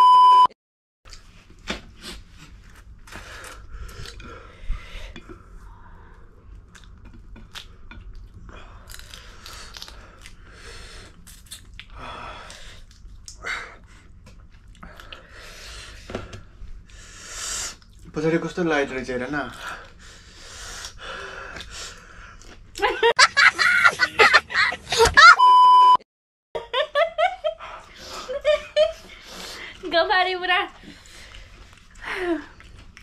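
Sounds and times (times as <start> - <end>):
steady beep tone: 0.0 - 0.5, 25.4 - 26.0.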